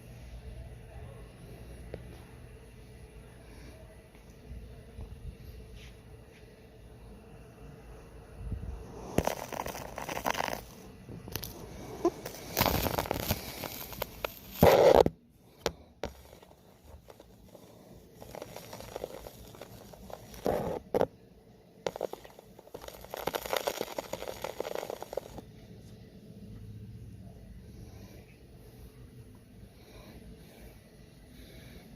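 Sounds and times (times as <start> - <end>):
rustling and crackling: 9.1 - 21.1, 21.9 - 25.4.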